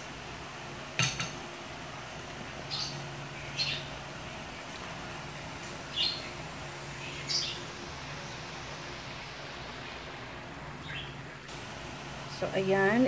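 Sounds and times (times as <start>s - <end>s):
background hiss: 0.0s - 13.0s
bird chirps: 10.8s - 11.2s.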